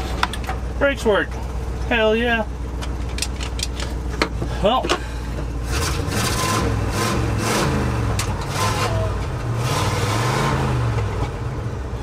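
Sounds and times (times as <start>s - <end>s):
truck engine running: 0.0s - 12.0s
clicks and rattles: 2.8s - 5.0s.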